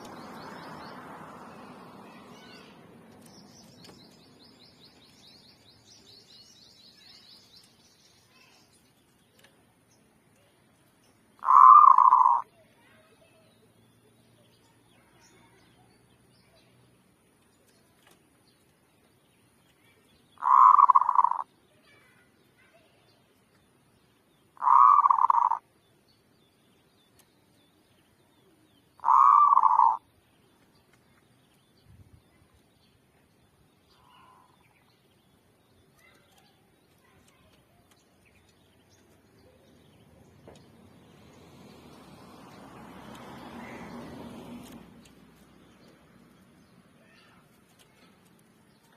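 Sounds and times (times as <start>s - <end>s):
faint high bird chirping: 0.0s - 16.7s, 17.4s - 41.1s, 45.4s - 48.9s
dove cooing: 11.4s - 12.4s, 20.4s - 21.4s, 24.6s - 25.6s, 29.0s - 30.0s.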